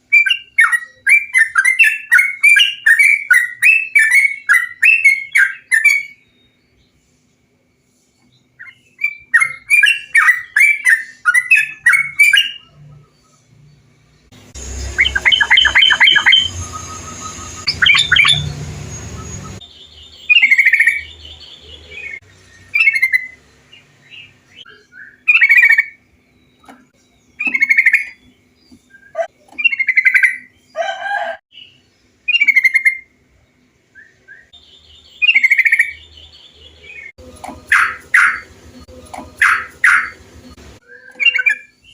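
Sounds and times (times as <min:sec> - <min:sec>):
bulbuls calling: 0:14.5 - 0:19.6, 0:26.6 - 0:28.3, 0:34.6 - 0:41.8.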